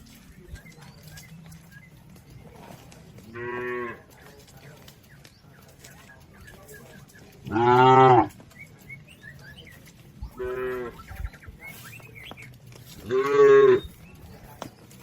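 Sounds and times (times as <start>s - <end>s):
cattle mooing: 7.5s - 8.3s, 13.1s - 13.8s.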